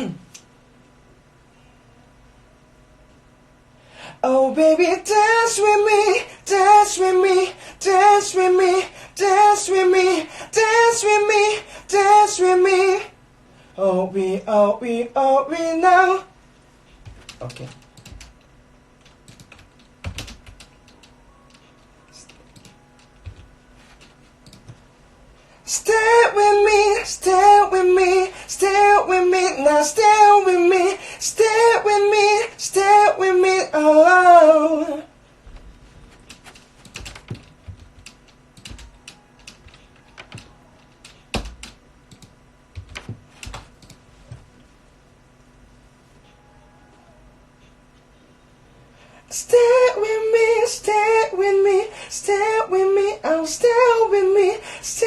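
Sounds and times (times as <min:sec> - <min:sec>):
computer keyboard clicks and taps: 0:17.0 - 0:18.4, 0:19.0 - 0:24.8, 0:36.1 - 0:44.0.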